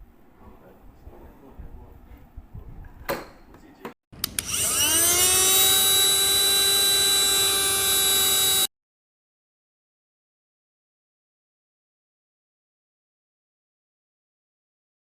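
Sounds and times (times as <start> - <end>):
small vacuum motor whining: 4.2 - 8.7.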